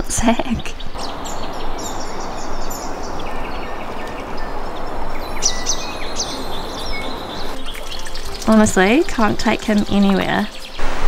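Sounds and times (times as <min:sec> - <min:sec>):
small birds chirping: 0:00.0 - 0:10.8
steady rushing noise: 0:00.9 - 0:08.5, 0:10.5 - 0:11.0.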